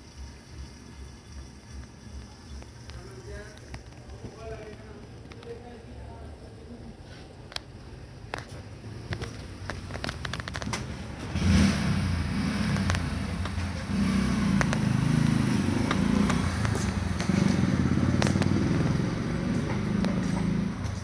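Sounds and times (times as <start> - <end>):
vehicle engine rumbling: 0.0 - 21.0
clicks and rattles: 8.3 - 10.9.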